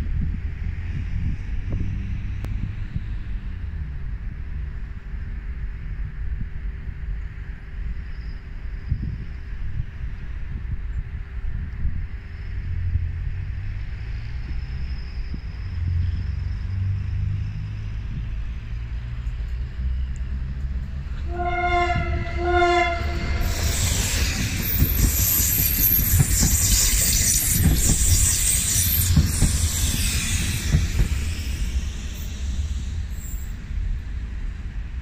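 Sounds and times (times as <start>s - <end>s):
train wheels rumbling on rails: 0.0s - 35.0s
train horn blasts: 21.2s - 23.7s.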